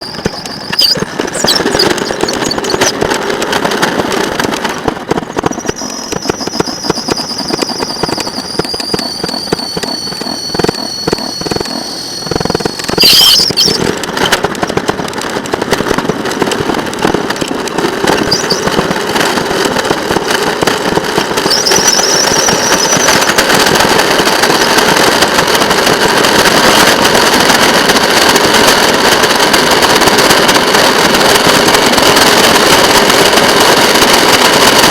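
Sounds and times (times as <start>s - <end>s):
high wheel squeals: 0.0s - 3.0s, 5.3s - 14.4s, 18.0s - 27.0s
wheels clattering on rail: 0.0s - 34.9s.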